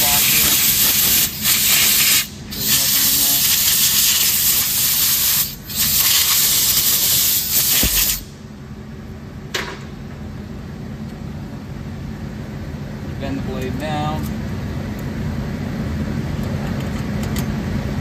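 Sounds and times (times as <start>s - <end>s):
compressed air hissing blasts: 0.0s - 8.4s.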